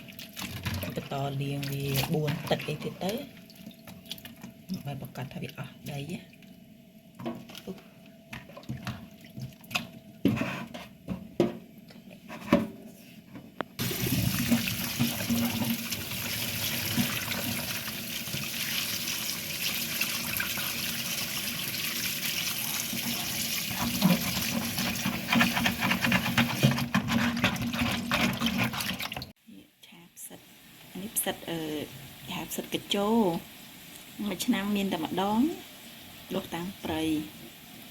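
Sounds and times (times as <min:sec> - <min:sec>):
tap running into a basin: 0:13.8 - 0:29.3.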